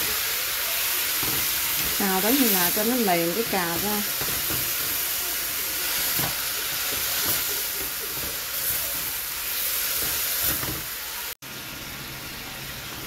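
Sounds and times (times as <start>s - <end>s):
food sizzling in a wok: 0.0s - 13.0s
spatula scraping and tapping pan: 3.7s - 5.0s.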